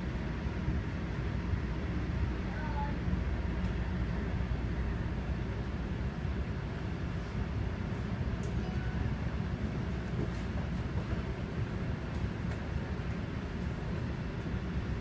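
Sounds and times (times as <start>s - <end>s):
train rumbling from inside coach: 0.0s - 15.0s.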